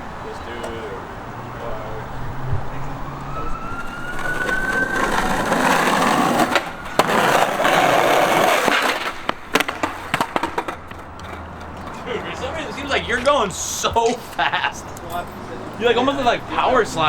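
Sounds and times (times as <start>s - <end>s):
skateboard wheels rolling on concrete: 0.0s - 17.0s
sharp crack: 3.8s - 11.4s
skateboard knocks and slaps: 4.1s - 12.0s.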